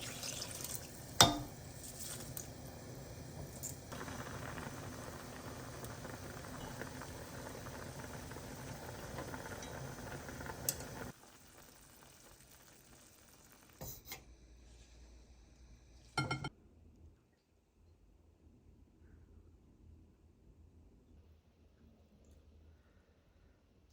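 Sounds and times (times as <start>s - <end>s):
pot boiling: 0.0s - 16.5s
kitchenware clattering: 1.2s - 1.6s, 16.2s - 16.5s.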